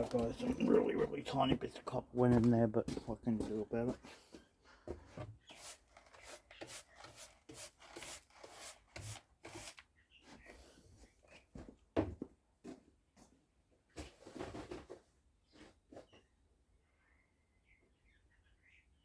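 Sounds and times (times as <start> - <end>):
hand tool scraping: 0.0 - 1.6, 2.2 - 4.4, 5.1 - 9.8.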